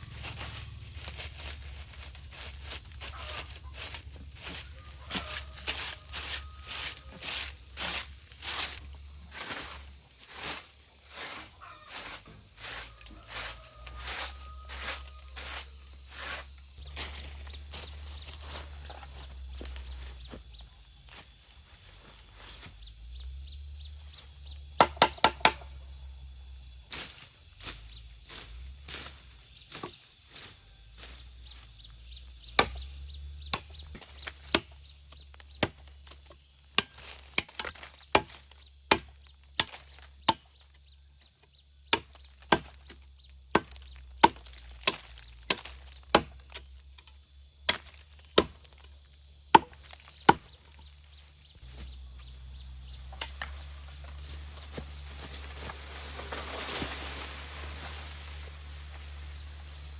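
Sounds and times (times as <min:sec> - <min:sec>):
high insect drone: 0:00.0 - 0:59.9
chopping blows on wood: 0:24.8 - 0:25.6.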